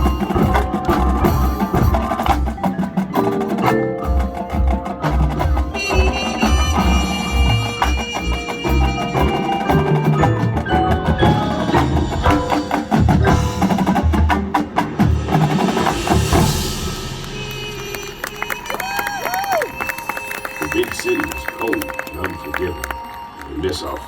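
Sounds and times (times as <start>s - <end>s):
mallet instruments and chimes: 0.0s - 24.0s
cymbal wash: 15.7s - 18.7s.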